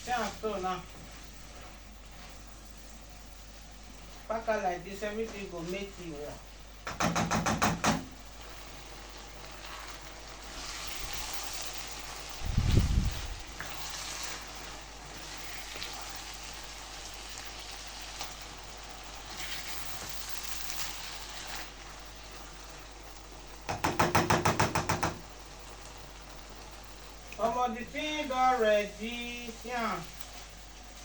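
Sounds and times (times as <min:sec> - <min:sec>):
stew sizzling in pan: 0:00.0 - 0:31.0
sharp knocks: 0:06.8 - 0:08.1, 0:23.7 - 0:25.2.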